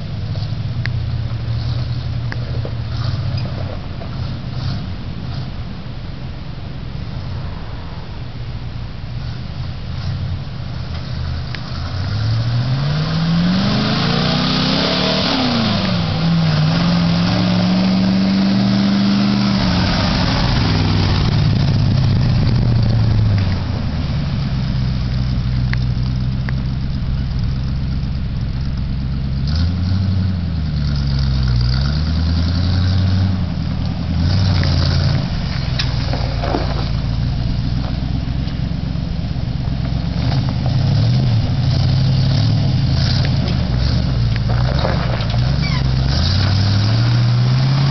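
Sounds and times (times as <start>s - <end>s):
truck engine revving and idling: 0.0s - 47.9s.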